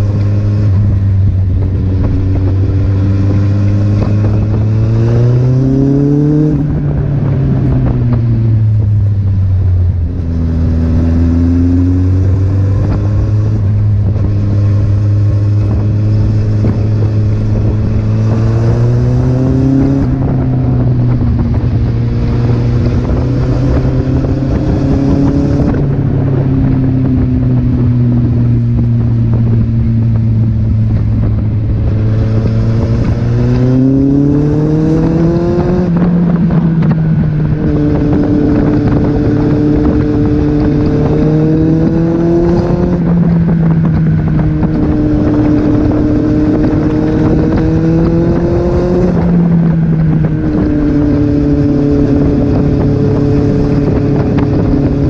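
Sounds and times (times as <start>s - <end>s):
motorcycle engine accelerating: 0.0s - 55.0s
wind rushing over microphone: 0.0s - 55.0s.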